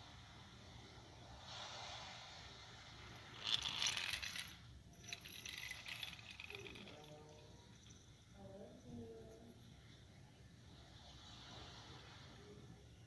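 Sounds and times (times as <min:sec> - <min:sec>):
small hard parts rattling: 0:03.4 - 0:08.2.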